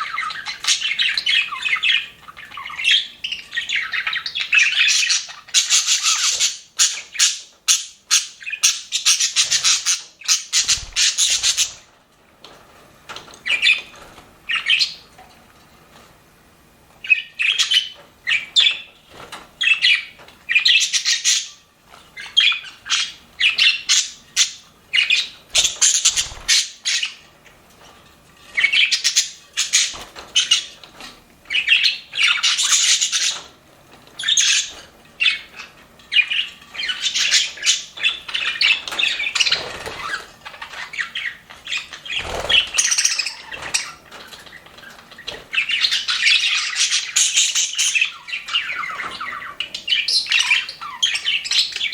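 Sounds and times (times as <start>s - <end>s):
budgerigars chirping and squawking: 0.0s - 11.9s, 13.1s - 15.0s, 17.0s - 27.5s, 28.5s - 51.9s.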